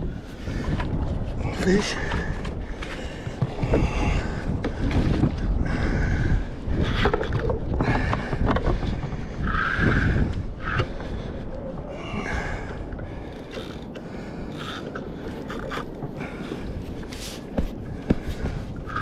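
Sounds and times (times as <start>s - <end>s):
water noise: 0.0s - 19.0s
wind: 0.0s - 19.0s
knocks and scrapes on kayak: 6.7s - 10.0s, 14.6s - 19.0s.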